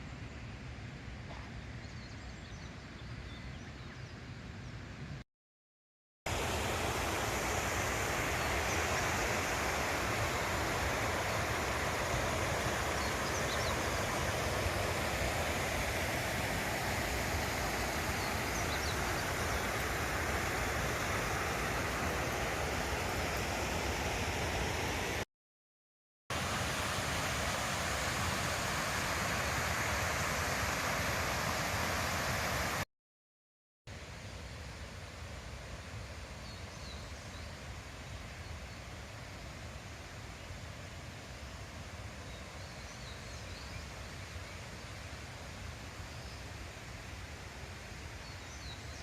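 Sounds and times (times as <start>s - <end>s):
running water rushing: 6.3s - 25.3s, 26.3s - 32.8s.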